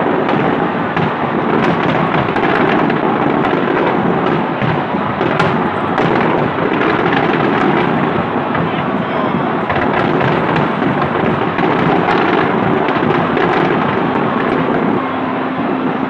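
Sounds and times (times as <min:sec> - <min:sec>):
fireworks cracks and bangs: 0:00.0 - 0:16.0
fireworks rumbling bursts: 0:00.0 - 0:16.0.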